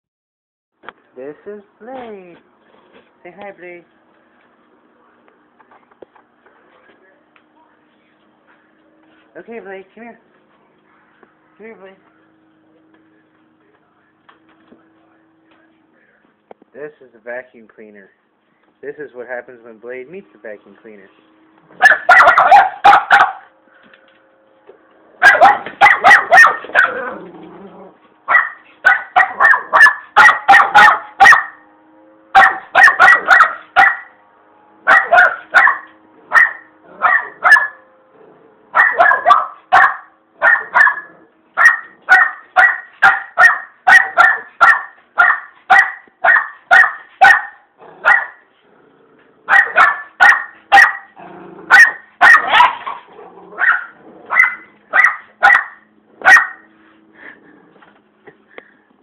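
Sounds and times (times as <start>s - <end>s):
dog barking: 21.8s - 23.5s, 25.2s - 27.1s, 28.3s - 31.6s, 32.4s - 34.2s, 34.9s - 37.8s, 38.7s - 48.4s, 49.5s - 56.7s.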